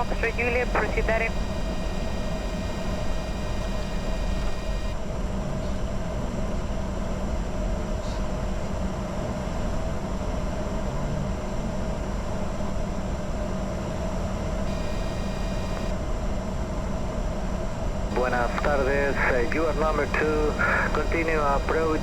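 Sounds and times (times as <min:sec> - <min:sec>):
jet engines rumbling and humming: 0:00.0 - 0:05.0, 0:18.1 - 0:22.0.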